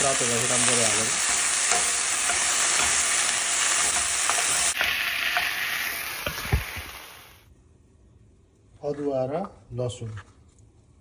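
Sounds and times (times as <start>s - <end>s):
vegetables sizzling in oil: 0.0s - 7.5s.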